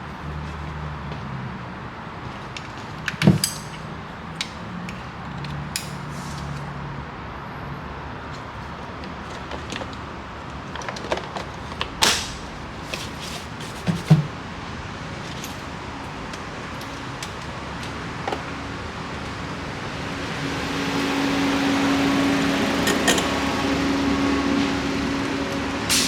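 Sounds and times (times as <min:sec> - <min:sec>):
dull thumps: 0:13.6 - 0:14.4.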